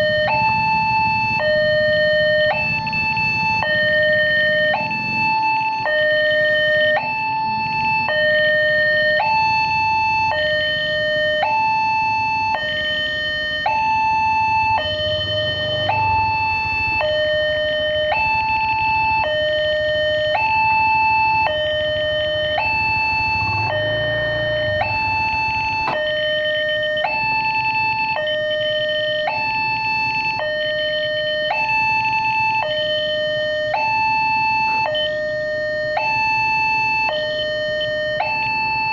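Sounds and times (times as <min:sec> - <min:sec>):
level crossing two-tone alarm: 0:00.0 - 0:38.9.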